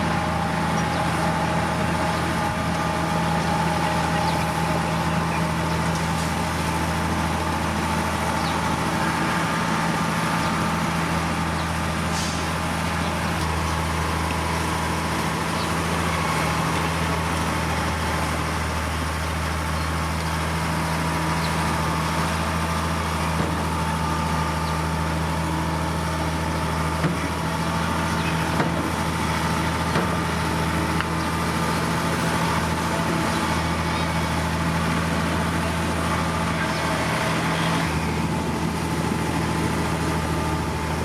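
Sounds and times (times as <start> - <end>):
diesel engine droning: 0.0 - 41.0.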